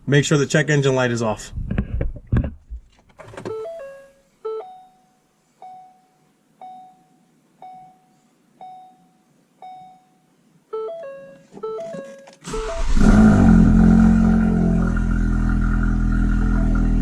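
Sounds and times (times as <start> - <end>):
dashboard warning chimes: 3.5 - 12.9.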